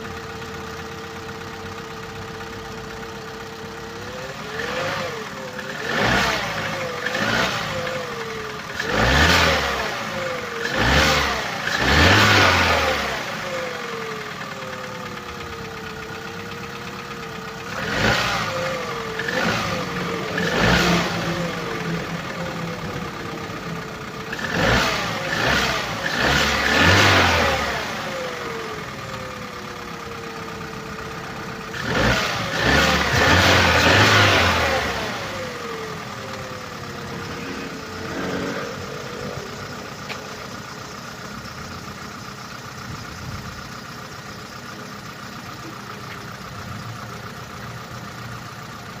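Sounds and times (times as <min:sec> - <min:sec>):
car engine revving and idling: 0:00.0 - 0:49.0
engine knocking: 0:00.0 - 0:49.0.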